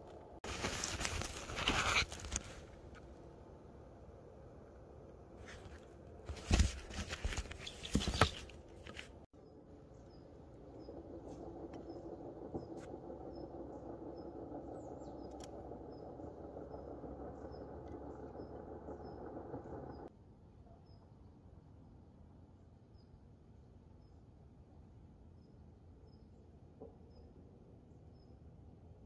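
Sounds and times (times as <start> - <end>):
crackling and rustling on microphone: 0.0 - 3.1, 5.4 - 9.3
low background hum: 0.0 - 20.1
small bird chirping: 7.5 - 8.5, 9.4 - 20.1.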